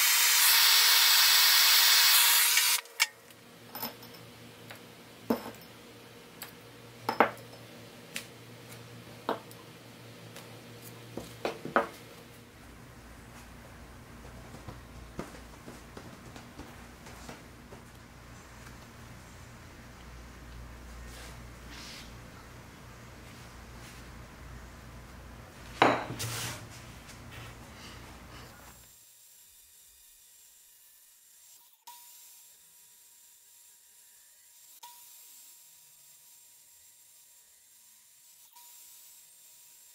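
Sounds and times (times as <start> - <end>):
steady low hum: 3.2 - 28.8.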